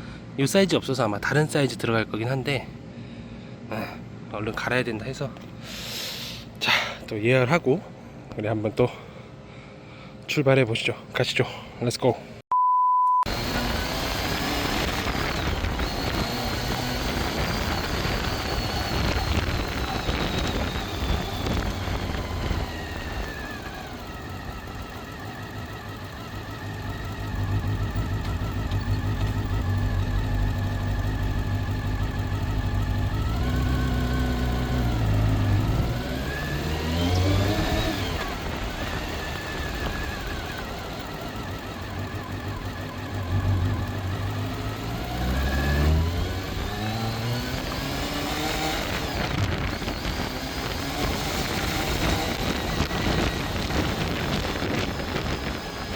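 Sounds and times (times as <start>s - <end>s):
motorcycle engine running: 13.3s - 55.9s.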